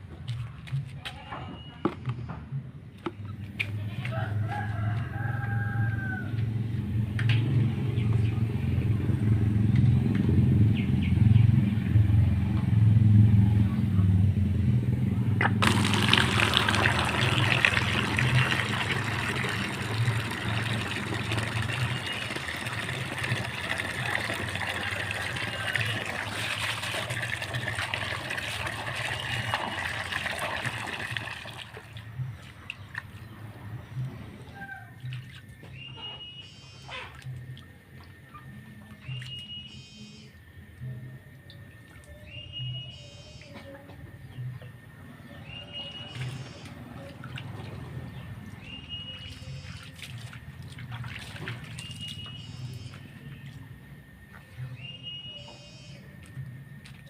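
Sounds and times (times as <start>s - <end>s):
rooster crowing: 4.0s - 6.7s, 22.5s - 26.4s, 34.4s - 35.1s
heavy rain hissing: 15.6s - 28.4s.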